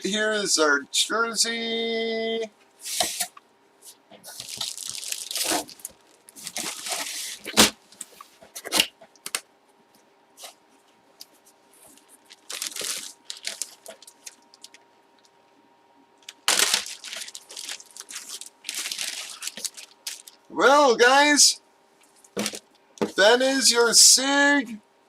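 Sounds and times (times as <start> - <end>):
packaging tearing and crinkling: 4.3 - 7.8, 11.9 - 14.8, 16.2 - 20.5.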